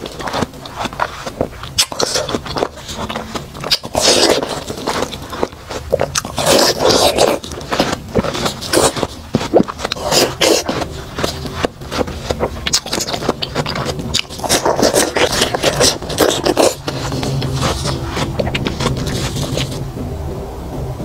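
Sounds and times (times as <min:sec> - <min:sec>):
chewing: 0:00.0 - 0:19.8
watermelon crunching: 0:00.0 - 0:19.9.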